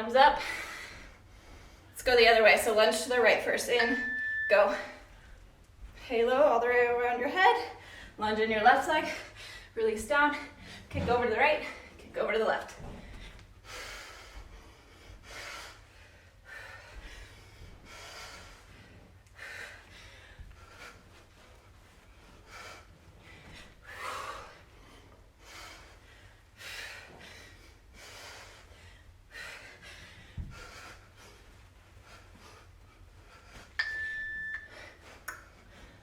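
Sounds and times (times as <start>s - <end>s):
woman breathing hard: 0.4s - 2.0s, 12.9s - 36.0s.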